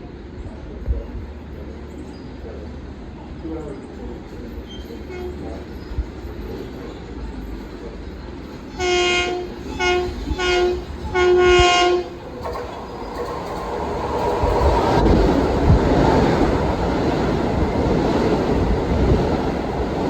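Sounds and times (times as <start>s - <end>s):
train rumble: 0.0s - 20.0s
train horn blasts: 5.1s - 5.4s, 8.7s - 12.2s.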